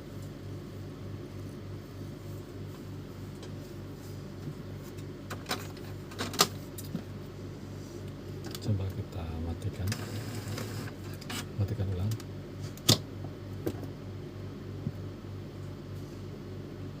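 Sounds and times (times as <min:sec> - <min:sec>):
printer mechanism humming: 0:04.3 - 0:13.7.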